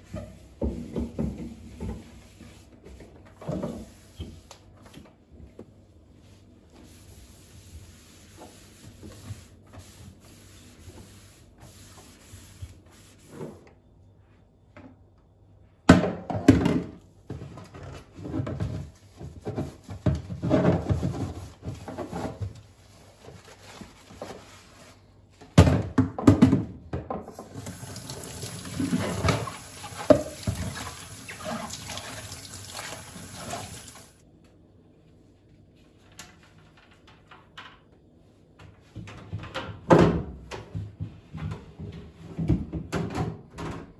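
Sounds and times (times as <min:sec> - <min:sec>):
tap water running into sink: 0:27.3 - 0:34.2
objects knocking in sink: 0:28.7 - 0:30.9.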